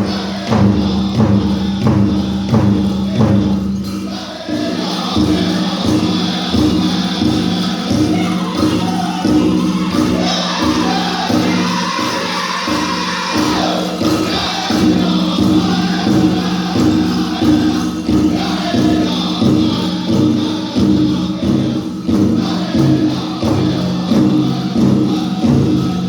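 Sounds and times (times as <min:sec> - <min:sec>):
big drum steady beat: 0:00.0 - 0:26.0
singers chanting together: 0:00.0 - 0:26.0.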